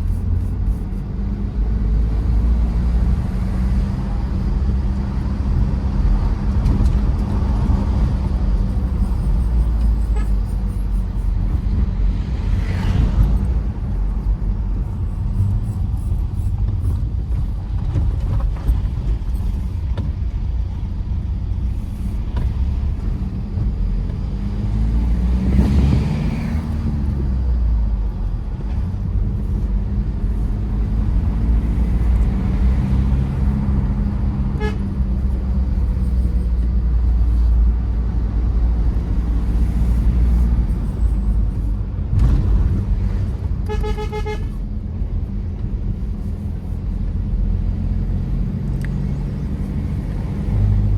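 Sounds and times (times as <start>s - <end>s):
road rumble: 0.0s - 50.9s
vehicle horn beeping: 9.8s - 11.0s, 34.5s - 35.0s, 43.6s - 44.6s.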